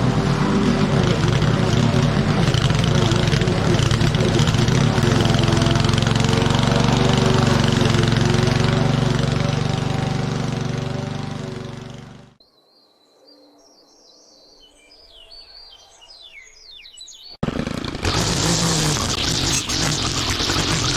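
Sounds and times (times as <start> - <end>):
lawn mower engine running: 0.0 - 12.4, 17.4 - 20.9.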